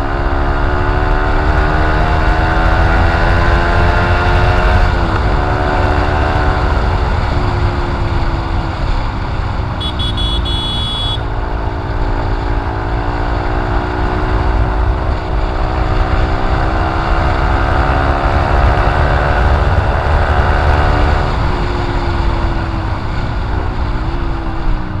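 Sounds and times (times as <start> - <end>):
motorcycle engine rumbling: 4.3 - 25.0
high beep: 9.8 - 11.2.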